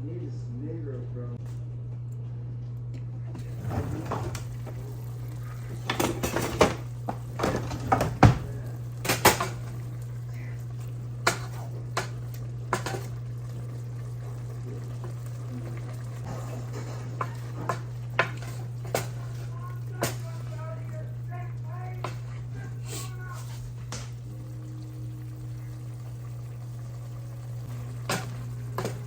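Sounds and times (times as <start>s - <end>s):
steady low hum: 0.0s - 29.0s
metal utensils clattering on pots: 5.8s - 9.8s, 10.8s - 13.2s, 16.3s - 20.7s, 27.9s - 29.0s.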